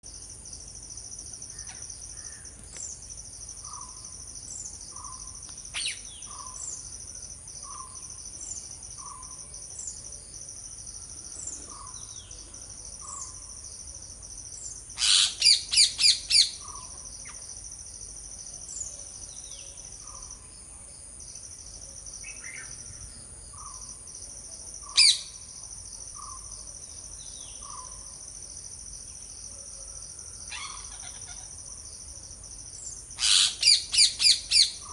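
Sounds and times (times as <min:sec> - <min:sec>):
high insect drone: 0:00.0 - 0:34.9
parrots screeching: 0:33.2 - 0:33.8.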